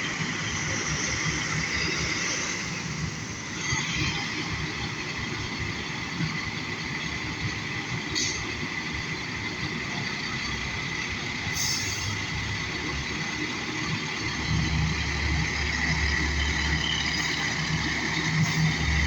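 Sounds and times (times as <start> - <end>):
fire truck engine and road noise: 0.0 - 19.0.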